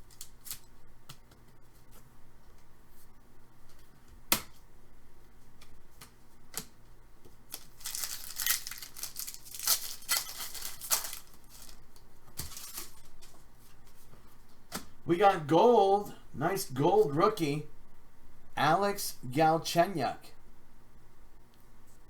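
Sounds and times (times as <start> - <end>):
foil wrapper tearing and crinkling: 7.5 - 13.4
rustling: 7.6 - 14.5.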